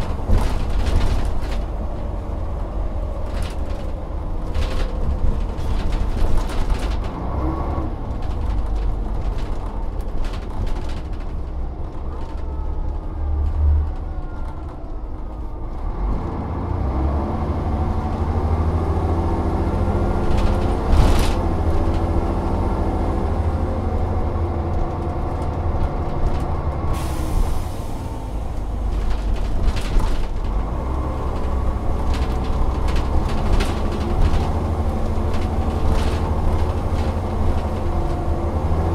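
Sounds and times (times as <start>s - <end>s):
rattles and knocks: 0.0s - 2.1s, 3.1s - 7.2s, 20.1s - 22.2s, 28.8s - 38.8s
bus engine running: 0.0s - 38.9s.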